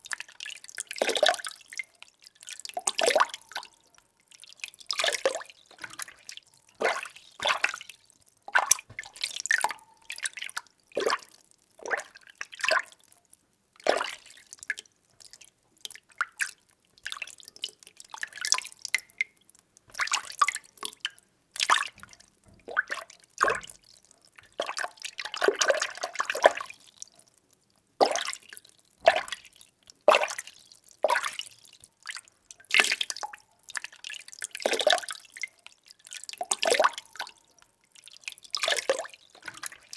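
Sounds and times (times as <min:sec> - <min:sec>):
water sloshing and splashing: 0:04.9 - 0:12.9, 0:19.9 - 0:21.0, 0:21.6 - 0:26.7, 0:38.5 - 0:39.9.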